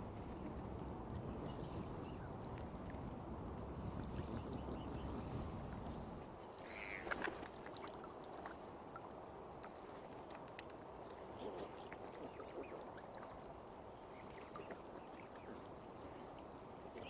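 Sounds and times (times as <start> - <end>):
lake water lapping: 3.6 - 17.0
small splashes and drips: 6.8 - 15.5.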